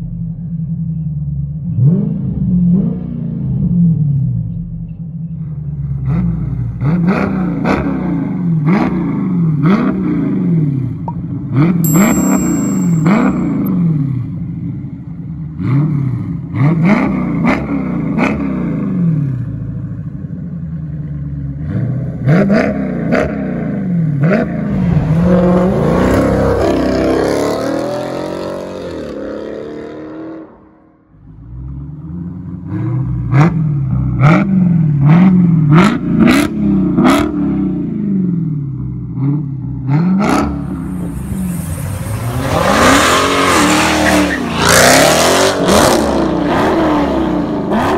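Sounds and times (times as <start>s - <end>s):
car engine revving: 31.2s - 47.9s.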